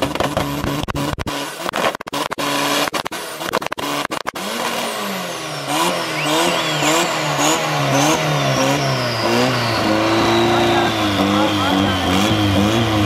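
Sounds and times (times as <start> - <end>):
car engine revving: 0.0 - 13.0
turbo whistle: 5.2 - 13.0.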